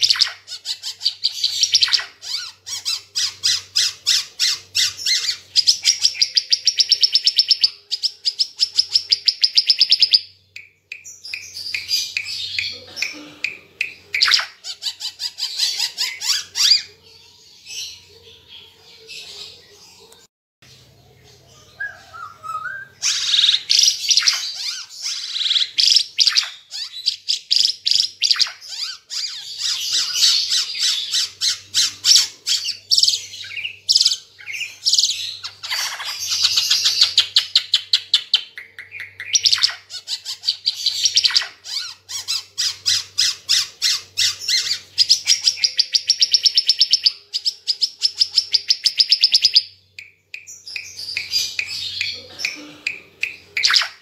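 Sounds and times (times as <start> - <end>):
songbird chattering and trilling: 21.4 - 54.0.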